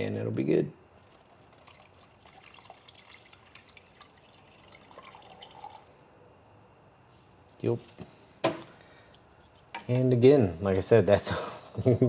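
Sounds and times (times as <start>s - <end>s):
liquid trickling into a cup: 1.1s - 6.0s.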